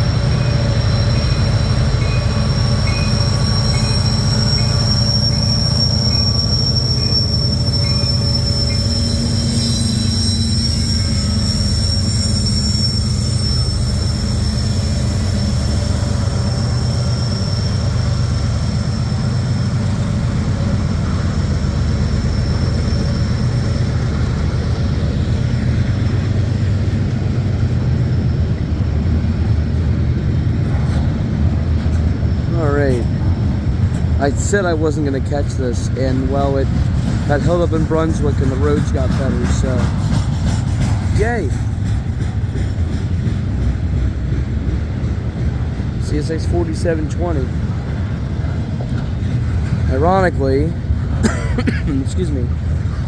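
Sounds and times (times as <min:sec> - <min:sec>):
high wheel squeal: 0:00.0 - 0:29.4, 0:30.2 - 0:41.7
train wheels rumbling on rail: 0:00.0 - 0:53.0.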